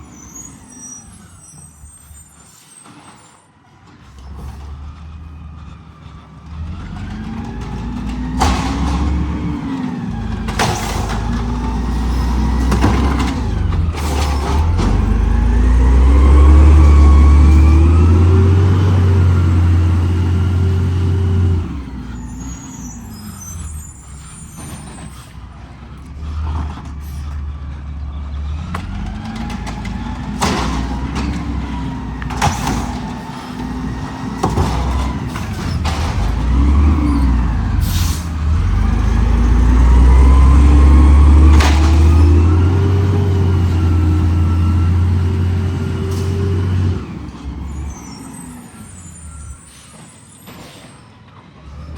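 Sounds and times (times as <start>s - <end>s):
garbage truck engine revving: 4.1s - 50.8s
clanks and knocks: 7.2s - 15.2s, 28.7s - 37.0s.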